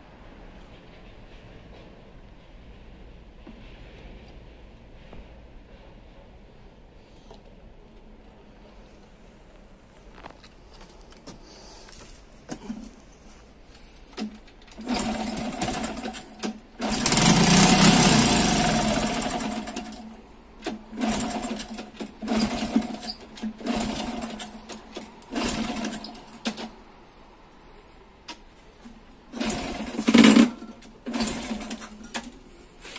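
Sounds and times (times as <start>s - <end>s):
motorcycle engine firing in bursts: 14.8s - 20.0s, 20.9s - 24.6s, 25.3s - 26.6s, 29.3s - 31.8s.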